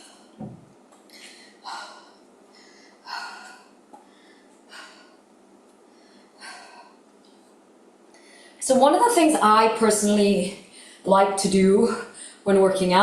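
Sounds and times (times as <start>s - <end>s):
woman breathing hard: 1.1s - 7.1s, 11.9s - 12.4s.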